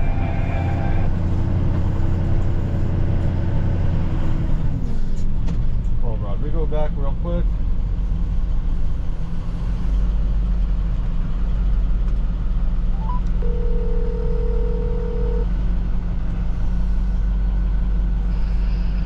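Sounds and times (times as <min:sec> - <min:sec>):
truck engine low rumble: 0:00.0 - 0:19.0
phone ringback tone: 0:13.0 - 0:15.5.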